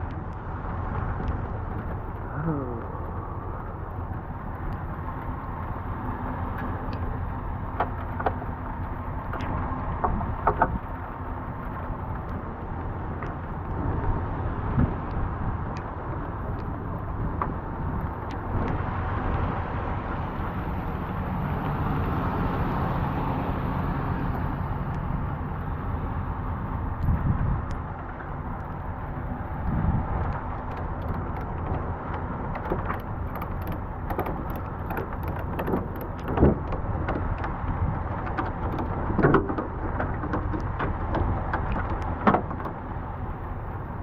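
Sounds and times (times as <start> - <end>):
vehicle engine idling: 0.0 - 44.0
sharp clicks and knocks: 6.3 - 13.8, 14.7 - 19.5, 27.0 - 44.0.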